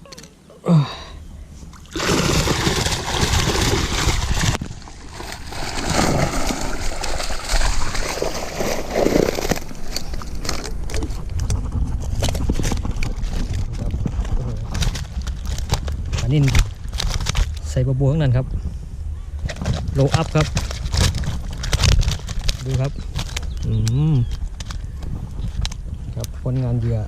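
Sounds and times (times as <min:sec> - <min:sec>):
fish splashing in water: 0:01.8 - 0:10.7.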